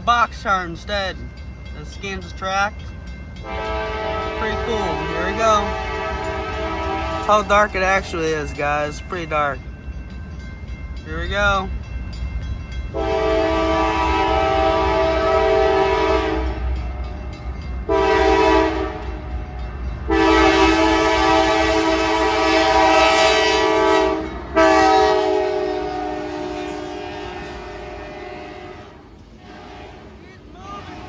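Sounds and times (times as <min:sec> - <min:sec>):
train rumble: 0:00.0 - 0:31.0
locomotive air horn blasts: 0:03.4 - 0:08.2, 0:12.9 - 0:17.2, 0:17.8 - 0:30.2.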